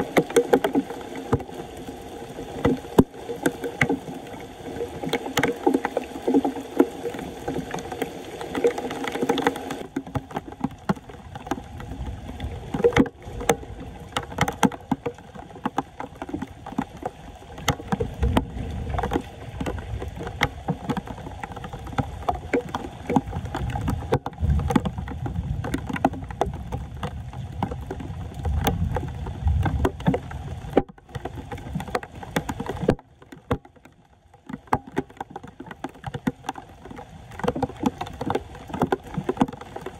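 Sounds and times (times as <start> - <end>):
floodwater splashing and sloshing: 0.0 - 39.9
knocks and clicks: 12.7 - 39.9.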